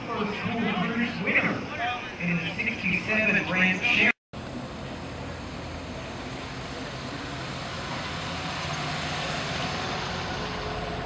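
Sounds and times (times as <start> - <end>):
steady outdoor hiss: 0.0 - 11.0
car engine rumbling: 4.4 - 11.0.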